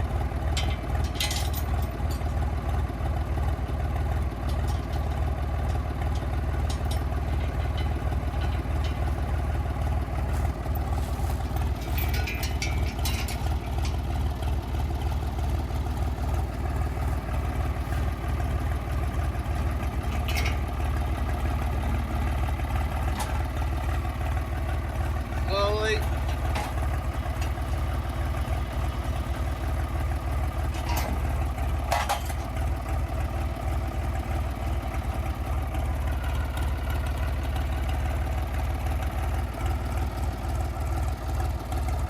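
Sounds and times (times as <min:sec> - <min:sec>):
engine idling: 0:00.0 - 0:42.0
light clicks and rattles: 0:10.2 - 0:14.1.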